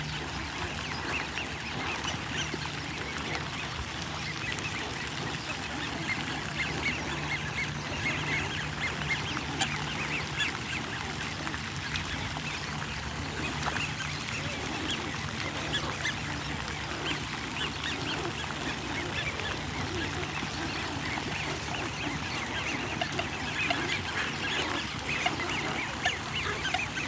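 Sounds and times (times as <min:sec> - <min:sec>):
flock of birds calling: 0:00.0 - 0:27.0.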